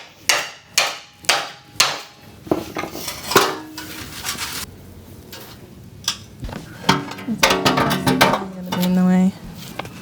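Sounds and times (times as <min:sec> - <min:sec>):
hammer striking metal: 0:00.0 - 0:02.2
metal clanking: 0:05.3 - 0:09.1.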